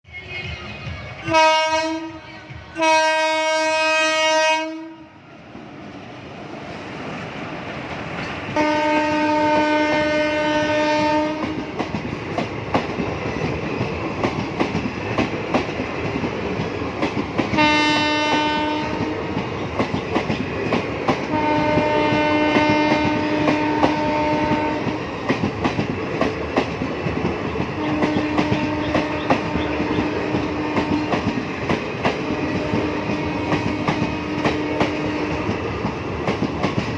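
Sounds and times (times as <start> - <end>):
train horn blasts: 0.3 - 5.2, 8.6 - 11.7, 17.6 - 19.2, 21.3 - 25.0, 27.8 - 31.3, 32.2 - 35.6
train wheels clattering on rails: 5.5 - 36.9.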